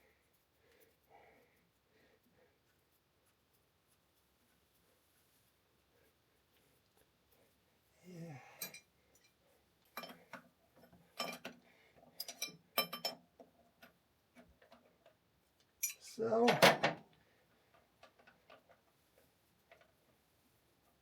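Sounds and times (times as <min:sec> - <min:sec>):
metal tools clinking and tapping: 0:08.6 - 0:13.2, 0:15.8 - 0:16.9.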